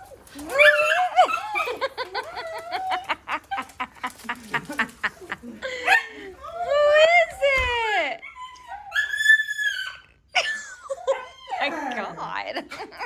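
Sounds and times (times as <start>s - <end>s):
dog whining and yipping: 0.0s - 3.2s, 8.2s - 12.0s.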